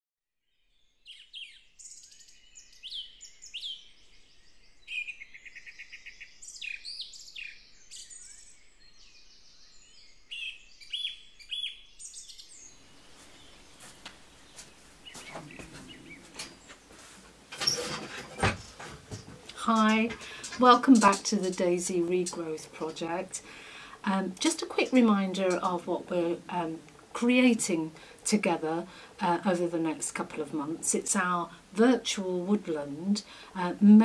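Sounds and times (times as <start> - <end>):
songbirds singing: 0.5 - 34.0
soft clicks and rustles: 13.1 - 23.4.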